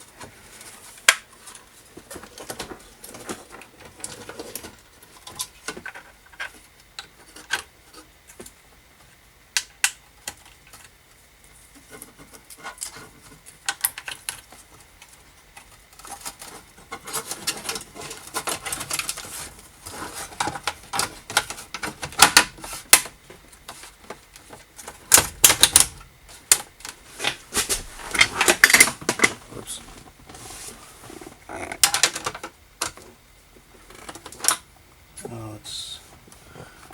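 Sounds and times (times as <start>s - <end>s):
small hard parts clicking and rattling: 11.8s - 30.1s, 31.2s - 33.1s.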